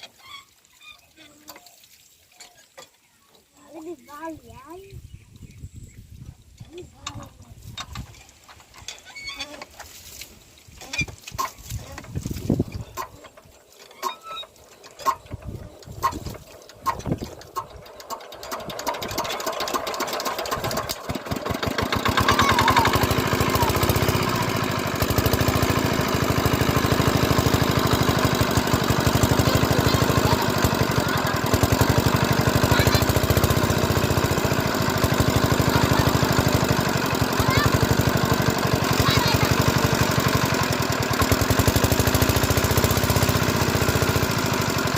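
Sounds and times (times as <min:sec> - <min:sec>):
diesel pump engine knocking: 0:14.8 - 0:44.9.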